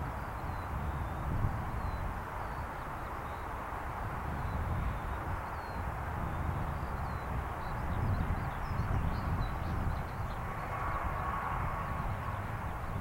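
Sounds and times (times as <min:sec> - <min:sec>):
distant jet aircraft rumble: 0:08.3 - 0:13.0.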